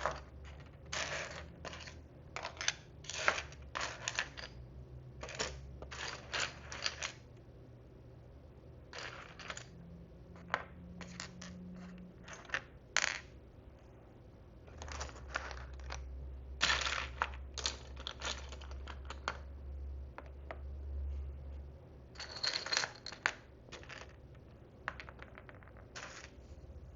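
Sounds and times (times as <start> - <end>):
small plastic pieces clicking: 0.0 - 4.6.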